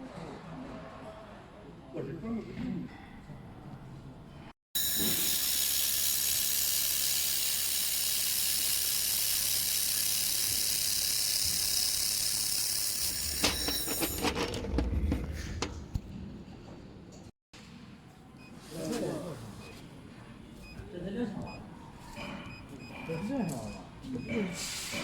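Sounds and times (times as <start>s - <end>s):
laser machine hissing: 4.8s - 14.2s.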